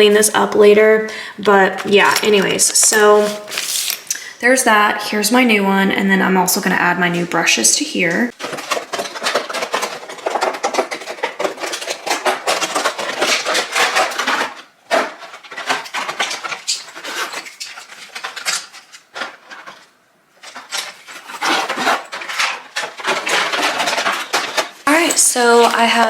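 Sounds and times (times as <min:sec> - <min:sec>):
makeup brushes clattering: 0:01.5 - 0:04.1, 0:08.3 - 0:26.0.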